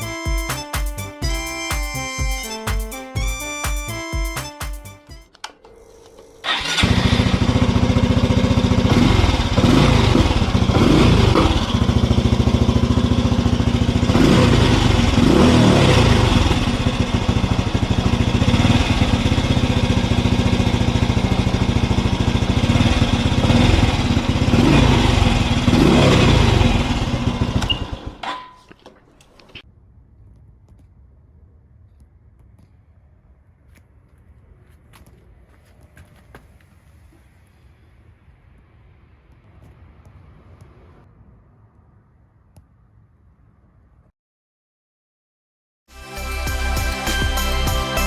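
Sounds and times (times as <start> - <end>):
motorcycle engine revving: 6.4 - 28.3.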